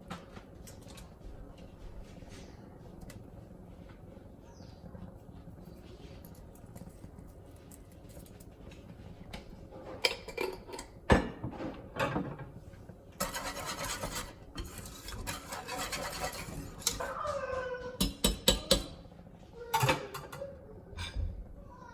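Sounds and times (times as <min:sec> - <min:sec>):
utensils clinking: 0:10.0 - 0:11.0
steady rasping rubbing: 0:13.2 - 0:16.9.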